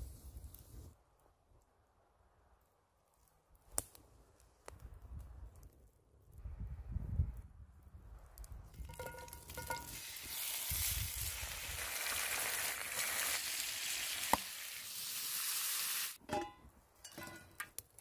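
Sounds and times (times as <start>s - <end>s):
meat sizzling in a skillet: 9.5s - 16.2s.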